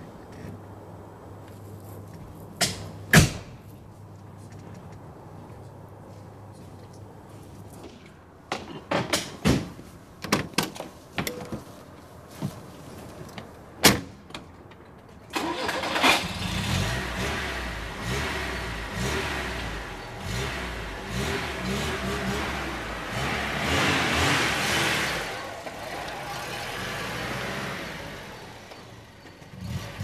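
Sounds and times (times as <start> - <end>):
knocks and clicks of handling a car: 7.8 - 11.8.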